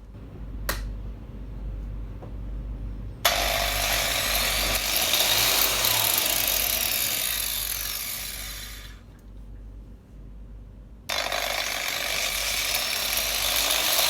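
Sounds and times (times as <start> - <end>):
grinder whirring: 3.3 - 9.1, 11.1 - 14.0.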